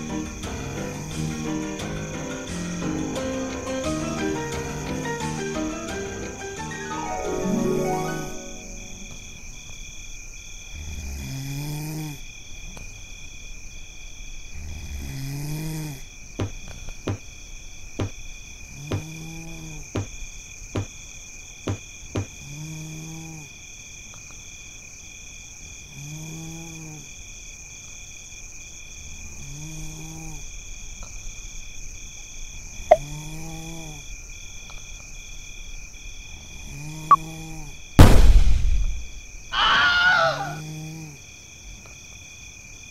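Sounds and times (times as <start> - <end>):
high cricket-like chirring: 0.0 - 42.9
loud bang: 38.0 - 39.2.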